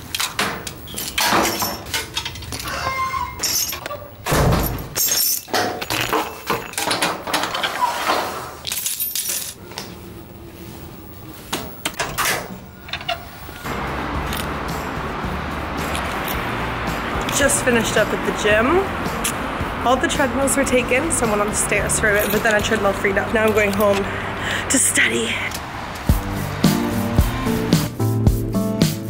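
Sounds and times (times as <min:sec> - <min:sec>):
hard objects clattering: 0:04.6 - 0:09.6.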